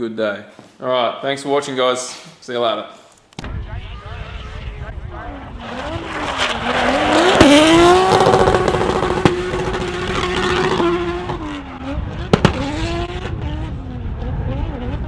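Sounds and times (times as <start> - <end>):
car engine revving: 3.6 - 15.0
sharp exhaust pops: 12.3 - 12.7.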